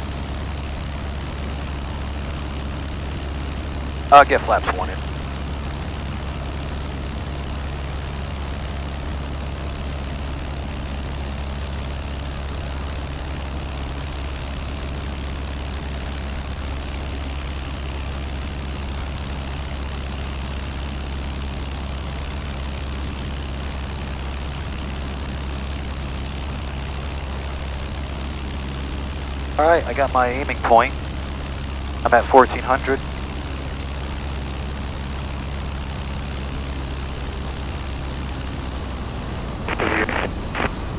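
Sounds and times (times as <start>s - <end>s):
propeller plane engine droning: 0.0s - 40.9s.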